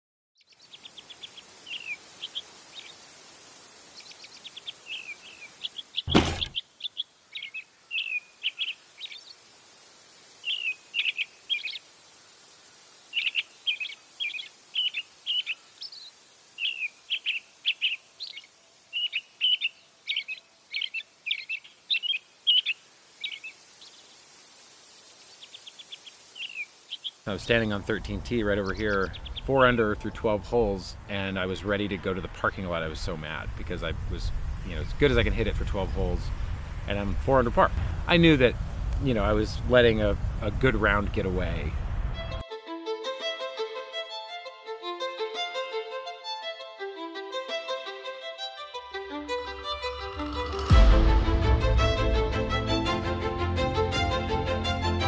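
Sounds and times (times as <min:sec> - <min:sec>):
birds chirping: 0:00.4 - 0:03.0, 0:03.8 - 0:09.4, 0:10.4 - 0:24.2, 0:25.0 - 0:42.4
faint steady hiss: 0:00.4 - 0:54.4
loud thump: 0:06.1 - 0:06.6.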